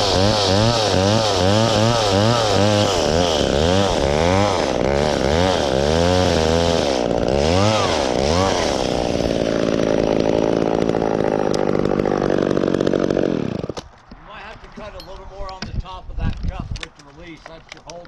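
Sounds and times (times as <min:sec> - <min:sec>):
chainsaw cutting a branch: 0:00.0 - 0:14.0.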